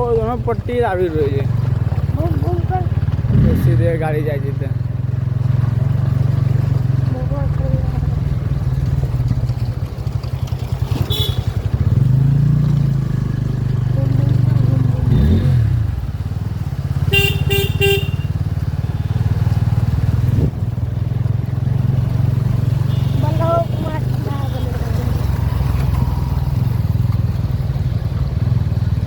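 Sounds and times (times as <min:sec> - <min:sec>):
motorcycle engine running: 0:00.0 - 0:29.0
horn honking: 0:10.8 - 0:11.8, 0:15.0 - 0:15.7, 0:17.0 - 0:19.6, 0:22.4 - 0:26.7.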